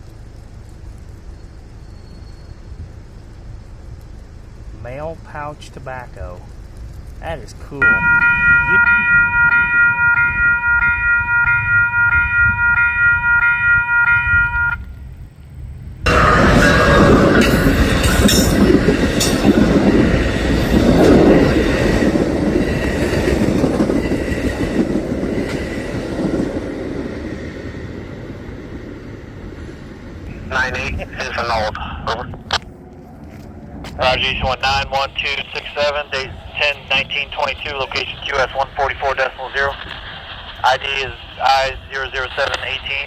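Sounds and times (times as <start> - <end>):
passing train rumble: 0.0 - 43.0
railroad crossing bell ringing: 7.8 - 15.0, 16.1 - 21.6.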